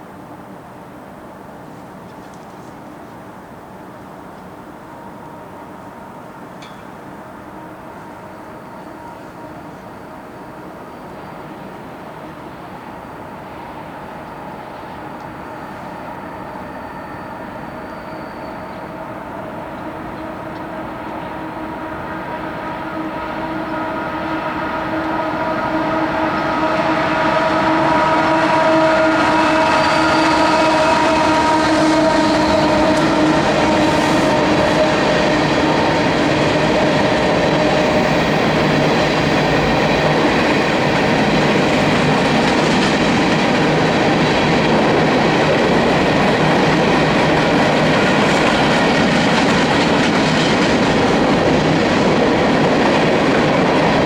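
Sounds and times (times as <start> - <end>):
train wheels roaring on rails: 0.0 - 54.0
locomotive horn: 16.0 - 38.8
wheels clickety-clack: 30.1 - 54.0.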